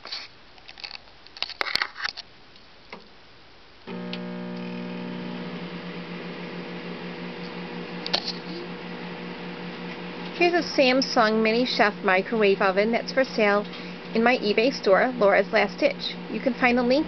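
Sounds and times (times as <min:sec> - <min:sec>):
microwave oven humming: 0:03.9 - 0:17.0.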